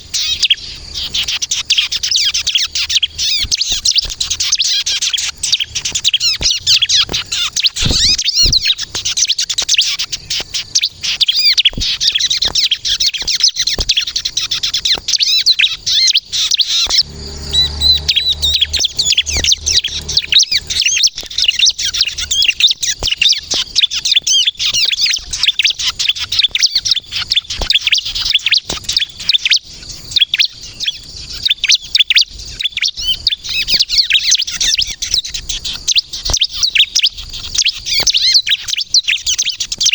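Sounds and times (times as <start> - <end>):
bird singing high chirps and trills: 0.0 - 39.9
low rumble: 16.7 - 21.0.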